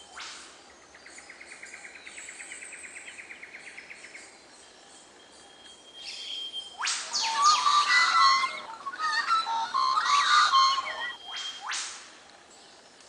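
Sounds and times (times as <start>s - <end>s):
faint high chirping: 3.8s - 11.7s
bird trilling: 5.9s - 11.7s
loud bird call: 6.3s - 11.8s.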